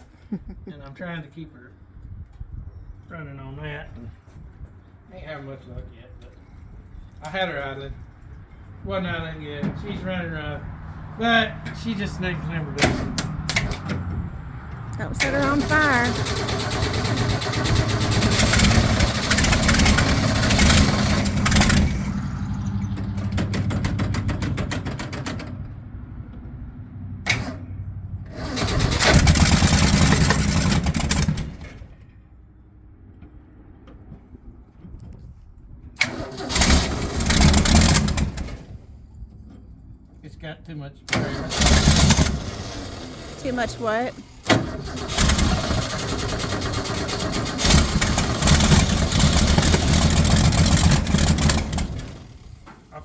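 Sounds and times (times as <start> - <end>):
car engine running rough: 9.2 - 34.2, 36.0 - 39.8, 41.2 - 53.0.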